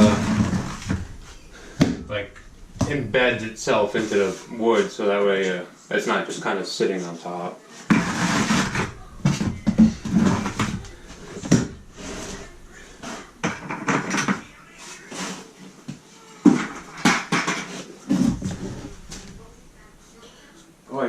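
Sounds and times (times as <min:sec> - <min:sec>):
trowel scraping mortar: 0:07.9 - 0:13.3.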